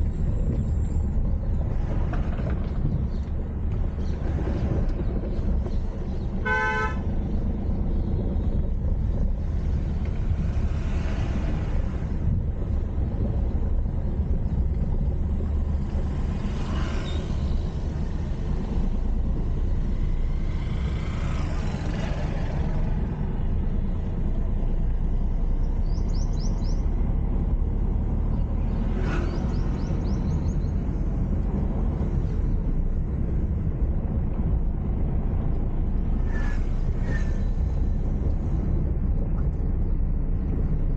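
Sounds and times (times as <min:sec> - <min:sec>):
car engine and road noise: 0:00.0 - 0:40.9
vehicle horn: 0:06.4 - 0:07.1.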